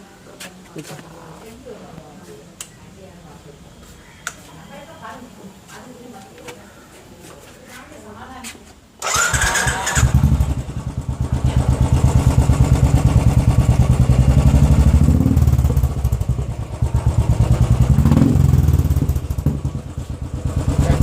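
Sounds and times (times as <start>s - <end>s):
motorcycle engine idling: 9.0s - 21.0s.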